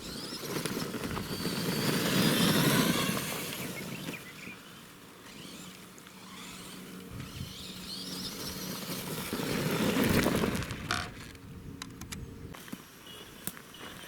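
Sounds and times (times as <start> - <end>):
tyres crunching on gravel: 0.0 - 4.8, 8.0 - 11.4
electric motor hum: 0.0 - 12.5.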